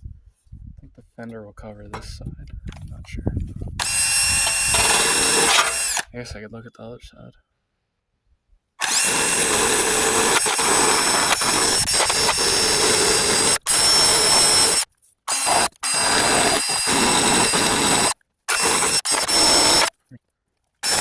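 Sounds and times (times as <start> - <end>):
power tool grinding metal: 3.8 - 6.1, 8.8 - 19.9.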